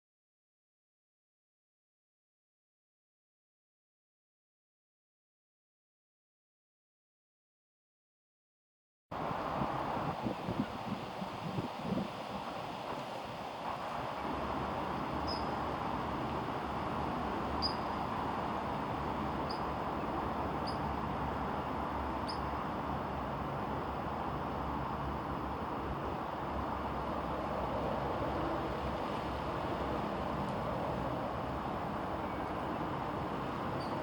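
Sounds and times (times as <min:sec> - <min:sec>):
steady outdoor rushing noise: 0:09.1 - 0:34.0
small bird chirps: 0:15.2 - 0:15.6, 0:17.6 - 0:17.9, 0:19.5 - 0:19.7, 0:20.6 - 0:20.9, 0:22.2 - 0:22.5.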